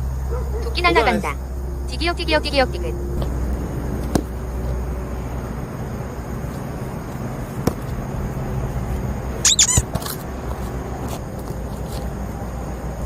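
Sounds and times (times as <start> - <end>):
low outdoor rumble: 0.0 - 13.0
high squeak: 9.4 - 10.2.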